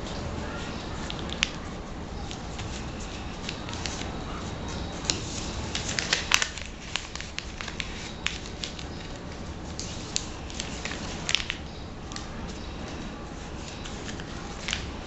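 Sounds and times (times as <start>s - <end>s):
paper crinkling and creasing: 0.0s - 15.0s.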